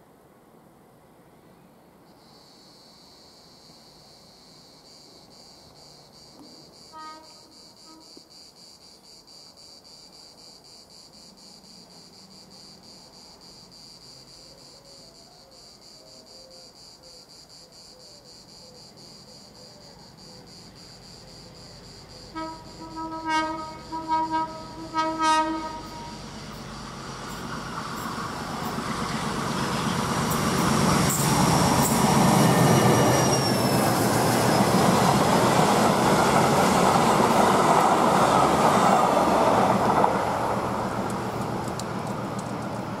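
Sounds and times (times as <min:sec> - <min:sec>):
train horn blasts: 0:06.8 - 0:08.2, 0:22.3 - 0:26.3
train rumbling past: 0:20.0 - 0:43.0
wheel squeal: 0:30.4 - 0:34.9.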